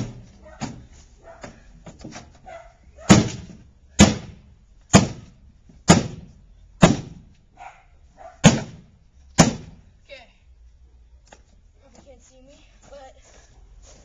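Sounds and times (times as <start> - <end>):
heavy blows smashing microwave: 3.1 - 7.2.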